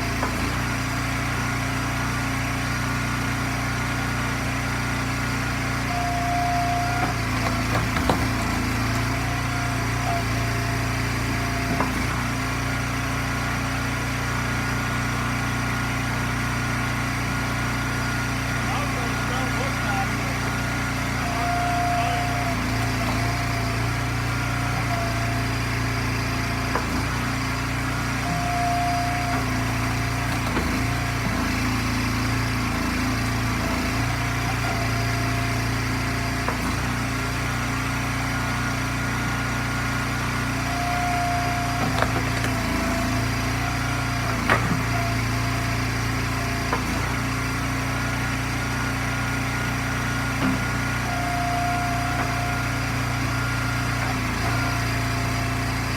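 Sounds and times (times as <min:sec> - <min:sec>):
log splitter engine running: 0:00.0 - 0:55.9.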